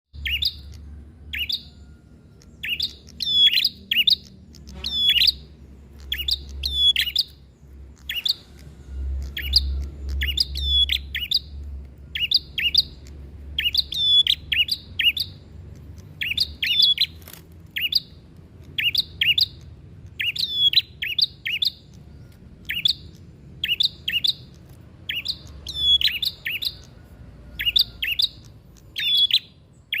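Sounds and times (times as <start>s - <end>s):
bird chirping rapidly: 0.2s - 30.0s
faint low rumble: 0.2s - 30.0s.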